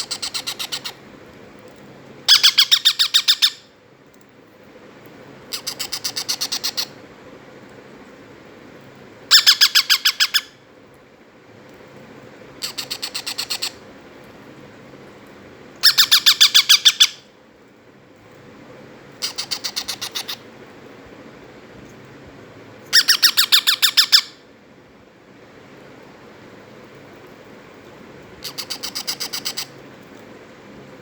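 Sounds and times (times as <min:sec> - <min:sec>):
parrots squawking: 0:00.0 - 0:01.0, 0:02.3 - 0:03.6, 0:05.5 - 0:07.0, 0:09.3 - 0:10.5, 0:15.8 - 0:17.2, 0:19.2 - 0:20.4, 0:22.9 - 0:24.4, 0:28.4 - 0:29.8.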